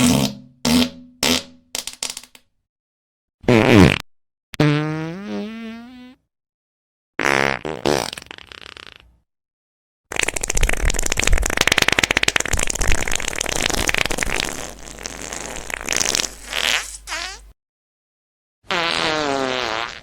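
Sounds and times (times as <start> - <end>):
sputtering fart: 0.0 - 2.3, 3.5 - 4.0, 4.6 - 6.2, 7.2 - 9.1, 10.1 - 17.6, 18.7 - 20.0.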